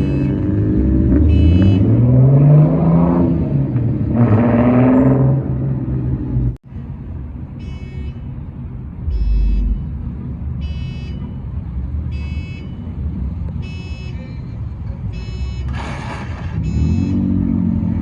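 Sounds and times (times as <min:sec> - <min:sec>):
electronic alarm beeping: 0:00.0 - 0:00.4, 0:01.3 - 0:01.9, 0:07.6 - 0:08.3, 0:09.1 - 0:10.0, 0:10.6 - 0:11.5, 0:12.1 - 0:12.9, 0:13.6 - 0:14.2, 0:15.1 - 0:15.8, 0:16.6 - 0:17.3
car engines rumbling: 0:00.0 - 0:18.0.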